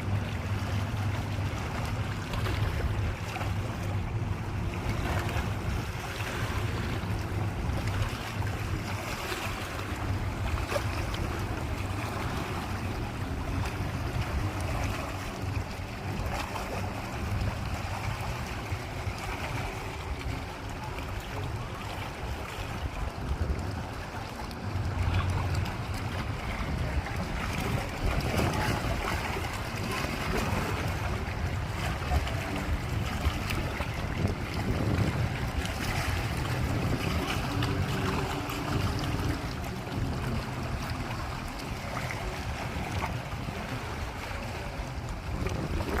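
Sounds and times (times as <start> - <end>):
lake waves lapping at shore: 0.0 - 46.0
wind buffeting microphone: 0.0 - 46.0.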